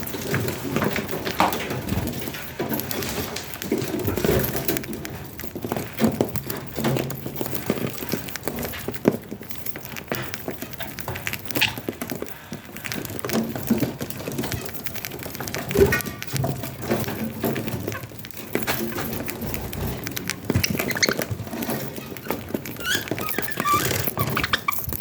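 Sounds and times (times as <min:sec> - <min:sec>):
small clicks and taps: 0:00.0 - 0:25.0
budgies chirping and chattering: 0:18.6 - 0:25.0.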